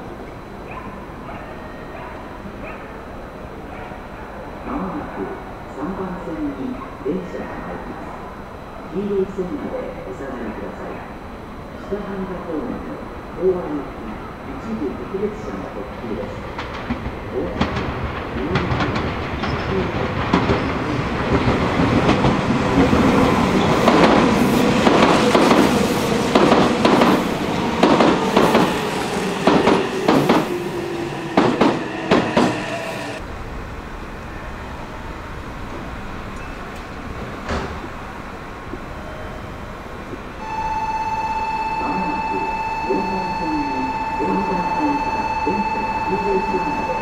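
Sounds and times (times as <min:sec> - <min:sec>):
train wheels clacking over rail joints: 0:23.7 - 0:28.8, 0:29.4 - 0:30.5.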